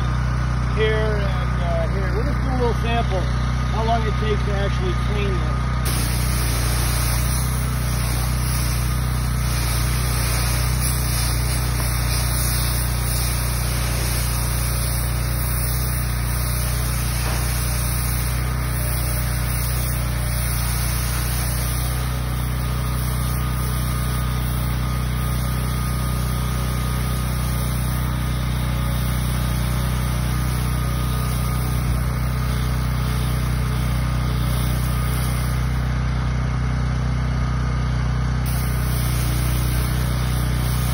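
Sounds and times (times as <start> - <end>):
pressure washer engine running: 0.0 - 40.9
water spray hissing on concrete: 5.9 - 35.9, 38.4 - 40.9.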